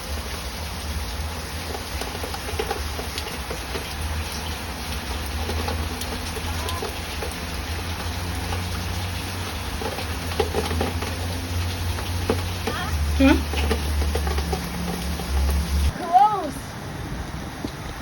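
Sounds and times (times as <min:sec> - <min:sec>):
heavy rain: 0:00.0 - 0:18.0
wind rumble on microphone: 0:16.6 - 0:18.0.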